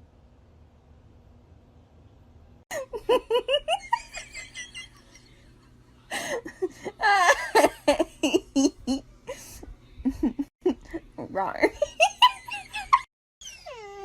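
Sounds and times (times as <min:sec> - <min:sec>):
person laughing: 0:02.7 - 0:05.5, 0:06.1 - 0:13.1.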